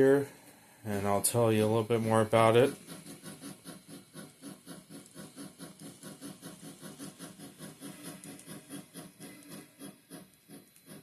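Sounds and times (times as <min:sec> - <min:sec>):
model train motor whirring: 0:02.4 - 0:11.0.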